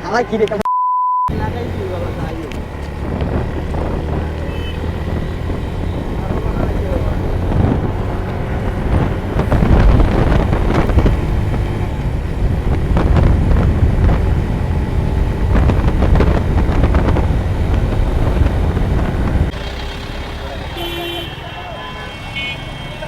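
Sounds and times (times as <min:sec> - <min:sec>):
road vehicle running: 0:00.0 - 0:00.7, 0:01.3 - 0:23.0
wind buffeting microphone: 0:01.3 - 0:19.7.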